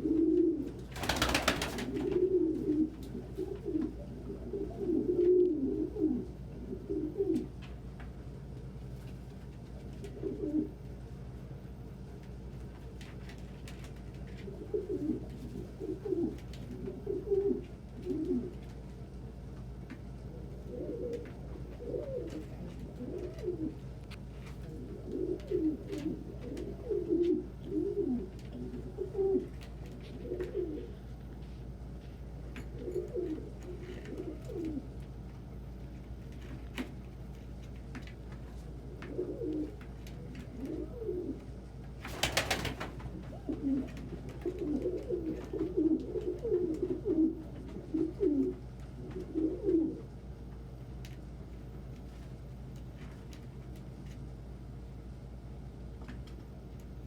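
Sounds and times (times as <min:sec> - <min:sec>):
pigeons cooing: 0:00.0 - 0:07.6, 0:09.8 - 0:10.8, 0:14.2 - 0:18.7, 0:20.1 - 0:31.2, 0:32.7 - 0:35.0, 0:38.8 - 0:50.2
steady low hum: 0:00.0 - 0:57.0.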